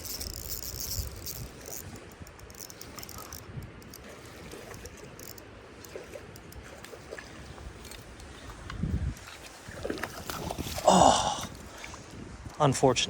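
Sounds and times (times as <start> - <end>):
faint clicks and ticks: 0.0 - 4.1, 4.7 - 6.7.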